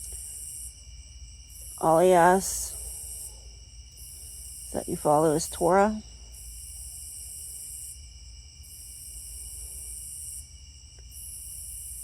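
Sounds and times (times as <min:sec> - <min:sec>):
high-pitched insect trilling: 0:01.5 - 0:03.4.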